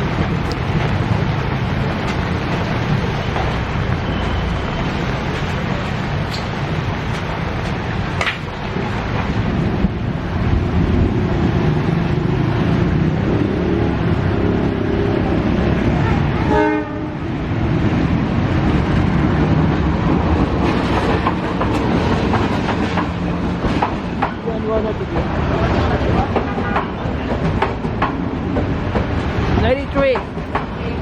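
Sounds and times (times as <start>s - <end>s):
train rumbling on rails: 0.0s - 31.0s
brief pitched tone: 4.0s - 5.7s.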